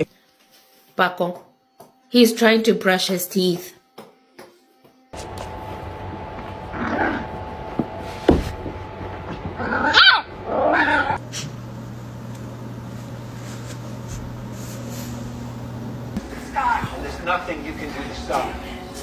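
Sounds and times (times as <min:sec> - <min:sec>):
steady low hum: 0:05.2 - 0:19.0
dog barking: 0:09.6 - 0:11.2.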